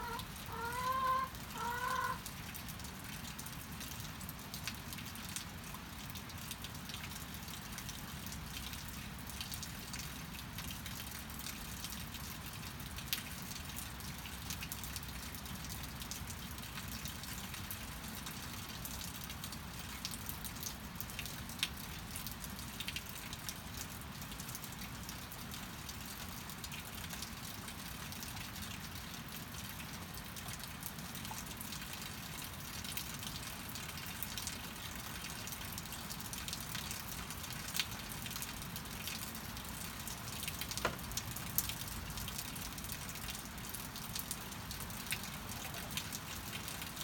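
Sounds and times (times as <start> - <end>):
loud water drips: 0.0 - 2.9
rain falling: 0.0 - 47.0.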